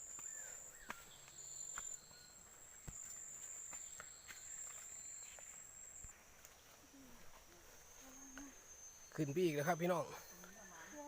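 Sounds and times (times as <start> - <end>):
footsteps on leaves: 0.0 - 8.0
insects chirring: 0.0 - 11.0.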